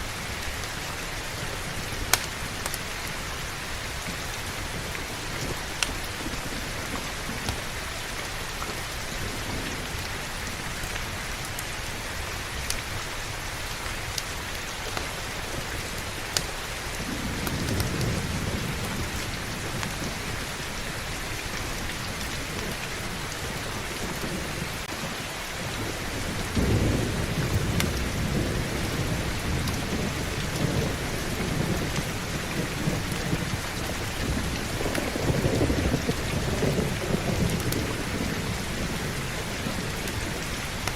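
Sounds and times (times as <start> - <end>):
heavy rain: 0.0 - 40.9
rolling thunder: 17.0 - 20.8, 25.6 - 40.9.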